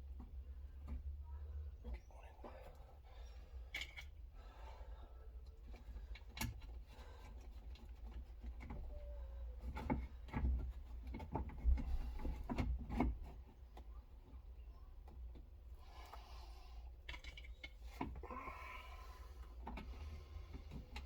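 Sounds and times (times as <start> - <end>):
clicks and knocks of hand work: 9.6 - 14.4.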